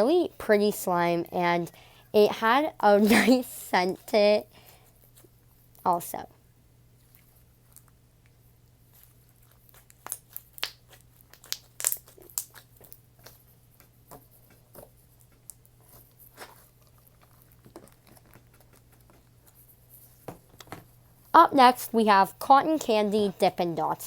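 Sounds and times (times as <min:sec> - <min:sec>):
slime squished by hand: 0:08.9 - 0:13.9
crunchy pops and crackles: 0:09.4 - 0:13.9.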